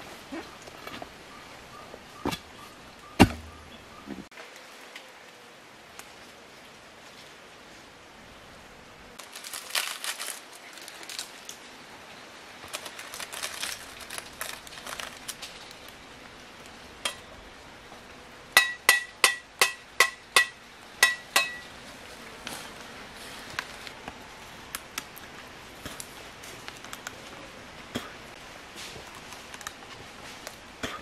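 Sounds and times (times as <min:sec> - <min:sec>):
rustling and crackling: 0:09.2 - 0:11.9, 0:12.5 - 0:16.9, 0:21.8 - 0:27.6, 0:28.3 - 0:31.0.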